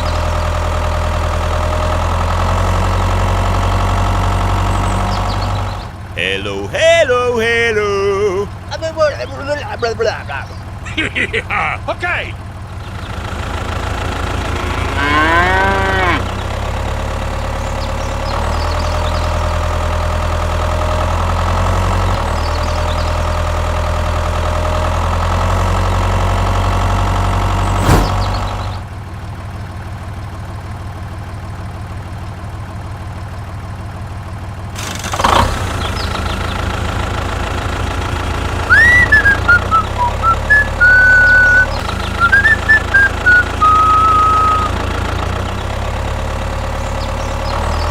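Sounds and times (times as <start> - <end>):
low engine hum: 0.0 - 34.7, 35.6 - 47.9
cow mooing: 14.8 - 16.3
thump: 27.7 - 28.6
high whistled chirps: 38.7 - 44.7.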